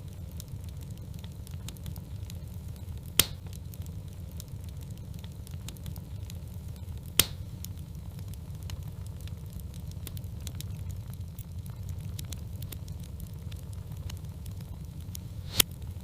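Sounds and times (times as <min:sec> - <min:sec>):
log fire crackling: 0:00.0 - 0:16.0
loud sharp pops: 0:03.2 - 0:03.5, 0:07.2 - 0:07.5.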